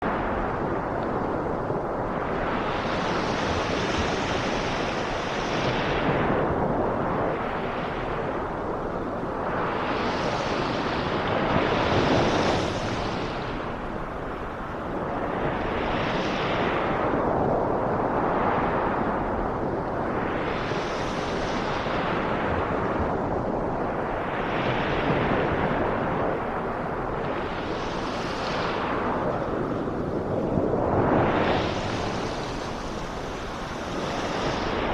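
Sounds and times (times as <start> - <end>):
sea waves surf: 0.0 - 34.9
ocean waves surging: 23.9 - 34.9.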